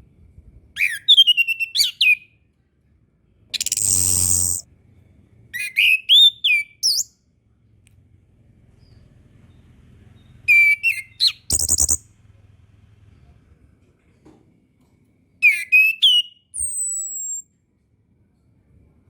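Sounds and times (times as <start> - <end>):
thrush singing whistled notes: 0.8 - 2.3, 3.6 - 4.6, 5.6 - 7.1, 10.5 - 12.0, 15.4 - 17.5
harsh buzzy bird note: 3.6 - 4.6.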